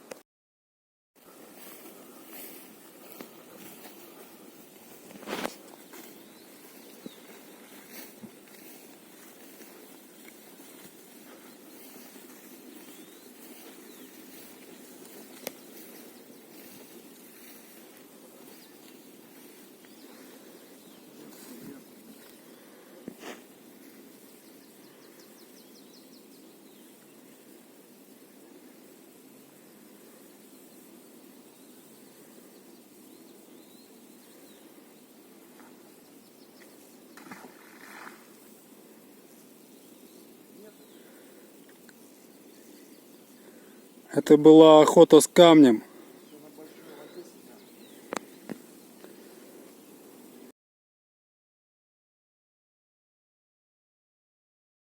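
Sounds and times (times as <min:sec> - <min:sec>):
low background hiss: 0:23.4 - 0:50.5.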